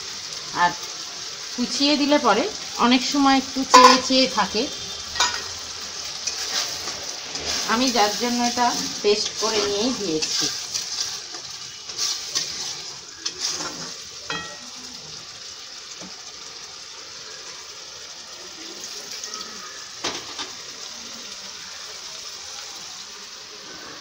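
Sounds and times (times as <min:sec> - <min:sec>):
food sizzling in oil: 0:00.0 - 0:24.0
metal spatula scraping pan: 0:03.7 - 0:04.3, 0:06.2 - 0:14.7.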